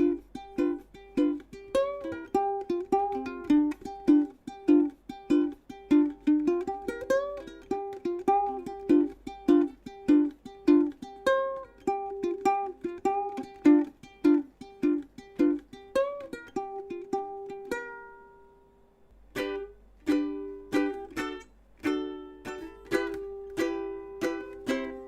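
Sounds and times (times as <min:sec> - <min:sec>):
fingerpicked ukulele melody: 0:00.0 - 0:25.0.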